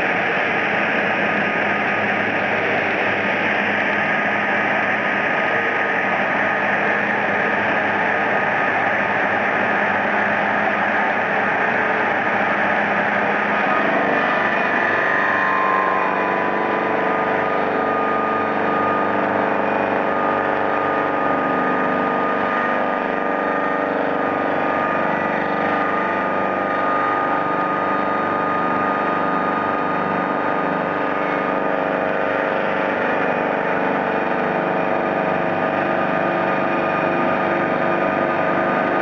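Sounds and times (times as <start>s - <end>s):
circular sawing machine running: 0.0s - 39.0s.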